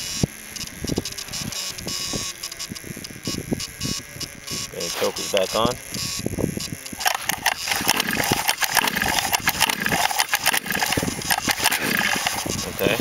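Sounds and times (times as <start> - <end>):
small engine sputtering: 6.8 - 13.0.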